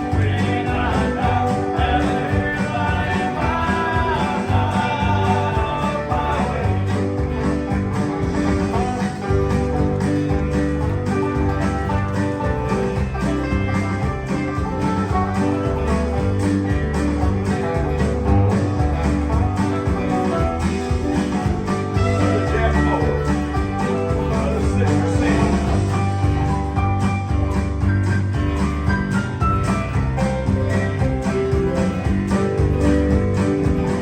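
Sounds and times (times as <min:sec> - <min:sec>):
country band playing instrumental: 0:00.0 - 0:34.0.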